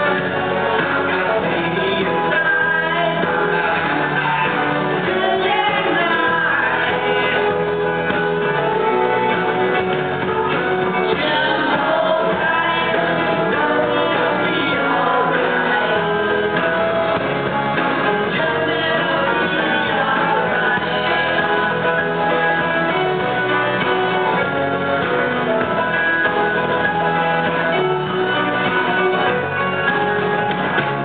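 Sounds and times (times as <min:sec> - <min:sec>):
live band playing: 0:00.0 - 0:31.0
person singing: 0:00.0 - 0:31.0.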